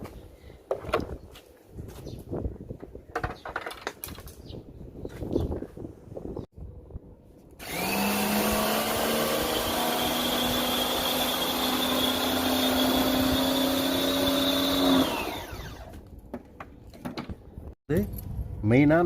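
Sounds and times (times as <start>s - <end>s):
electric motor machine whining: 7.6s - 16.0s.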